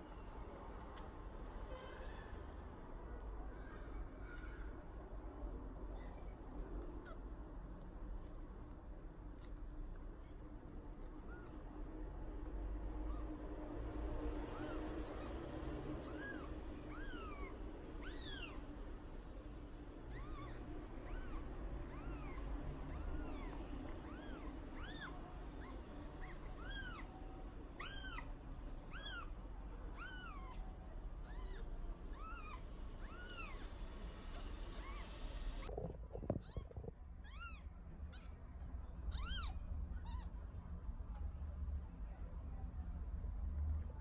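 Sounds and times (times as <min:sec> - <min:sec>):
faint low hum: 0:00.0 - 0:44.0
kitten mewing: 0:16.0 - 0:18.6, 0:20.1 - 0:27.1, 0:29.9 - 0:30.6, 0:31.2 - 0:33.7, 0:39.1 - 0:40.3.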